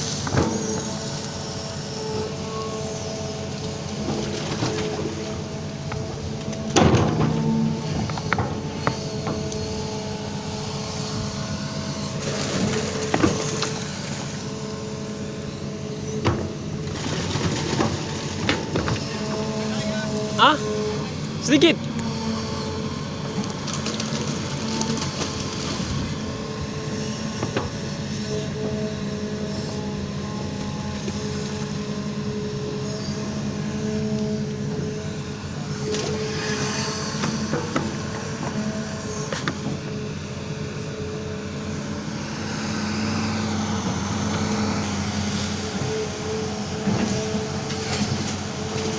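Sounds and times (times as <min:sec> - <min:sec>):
diesel engine running: 0:00.0 - 0:48.9
machine knocks and clanks: 0:06.5 - 0:09.6.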